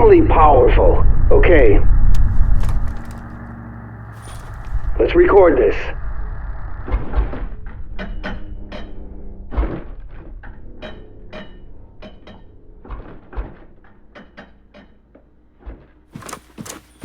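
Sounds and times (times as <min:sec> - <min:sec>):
sharp foley knocks: 0:02.2 - 0:03.5.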